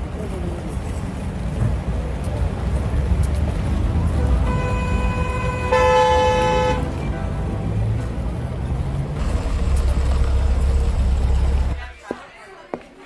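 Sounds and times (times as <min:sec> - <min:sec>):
road traffic rumbling: 0:00.0 - 0:12.1
vehicle horn honking: 0:04.5 - 0:06.8.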